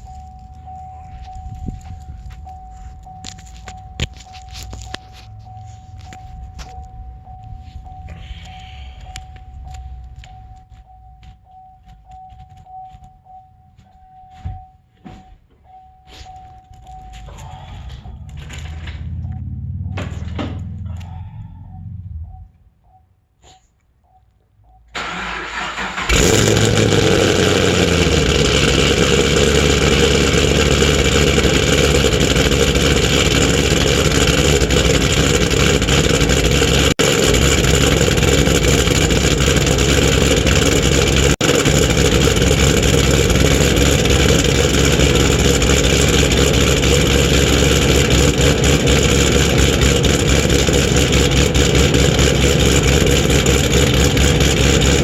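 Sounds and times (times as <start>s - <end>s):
car engine starting and idling: 0.0s - 13.9s, 14.9s - 23.2s, 24.0s - 55.0s.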